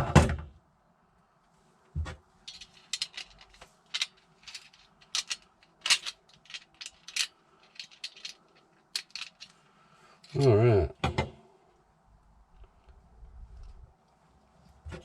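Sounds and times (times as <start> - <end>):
small hard objects clicking: 2.5 - 9.6.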